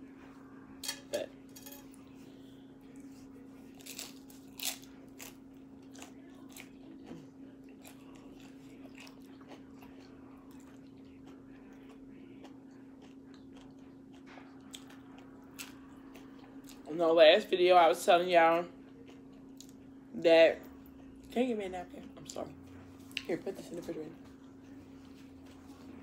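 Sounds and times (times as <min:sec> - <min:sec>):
quiet chewing: 0:01.9 - 0:16.9, 0:18.7 - 0:20.0, 0:22.0 - 0:26.0
tortilla chips crunching: 0:03.1 - 0:16.9.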